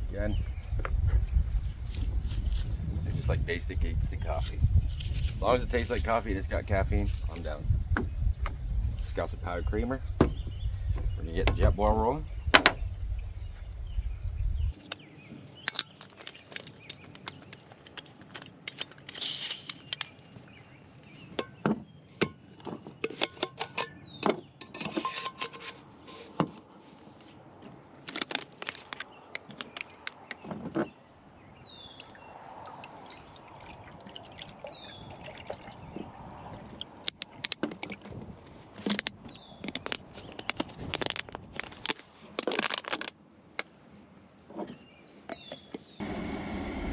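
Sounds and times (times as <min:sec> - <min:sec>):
water pouring: 0:32.7 - 0:35.8.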